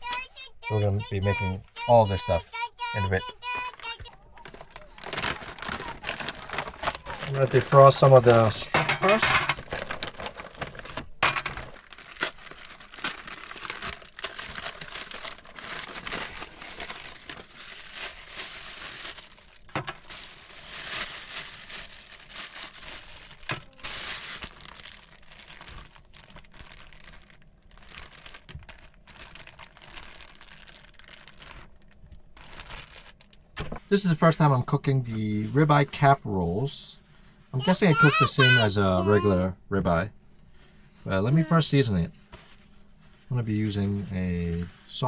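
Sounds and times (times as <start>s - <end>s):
plastic packaging crinkling: 3.4s - 33.9s, 37.9s - 39.2s.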